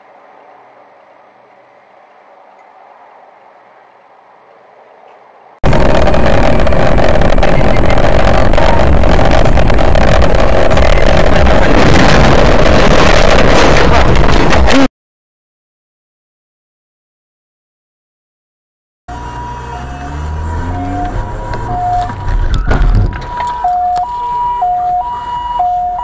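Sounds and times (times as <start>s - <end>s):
loud distorted vehicle noise: 5.6s - 14.9s, 19.1s - 26.0s
faint vehicle hum: 19.1s - 26.0s.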